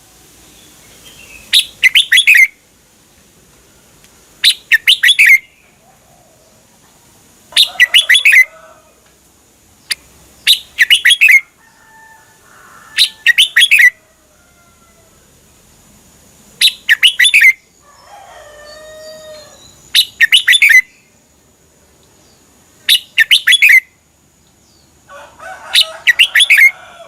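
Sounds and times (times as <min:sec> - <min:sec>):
bulbul singing: 0:00.4 - 0:02.6, 0:04.4 - 0:05.8, 0:07.5 - 0:08.6, 0:09.7 - 0:11.5, 0:12.9 - 0:14.0, 0:16.6 - 0:17.8, 0:18.7 - 0:21.2, 0:22.1 - 0:24.0, 0:25.7 - 0:26.8.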